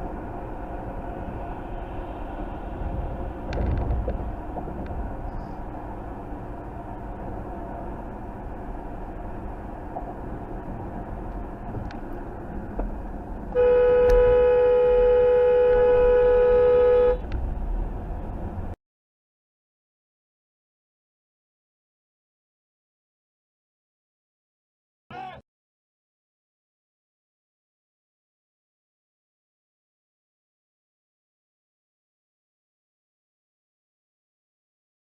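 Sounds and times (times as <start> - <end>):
vehicle road and engine noise: 0.0 - 18.8
vehicle horn blast: 13.6 - 17.2.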